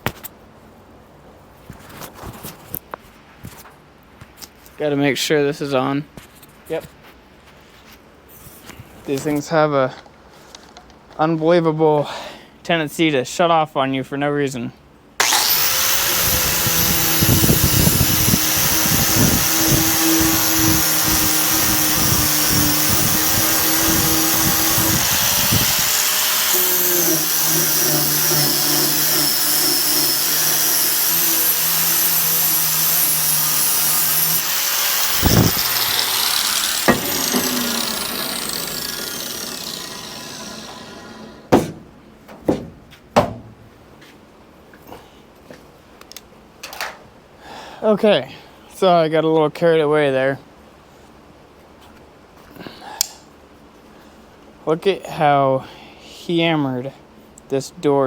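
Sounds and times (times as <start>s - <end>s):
power sander on steel: 15.2s - 41.5s
sharp knocks: 41.5s - 43.6s.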